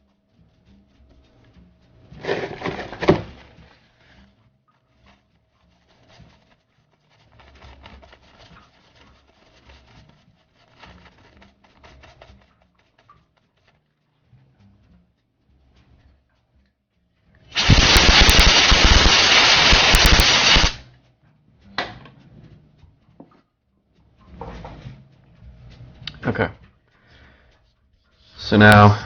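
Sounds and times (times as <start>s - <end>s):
scrubbing: 0.7s - 14.7s
scratching and rubbing circuit board: 17.5s - 20.8s.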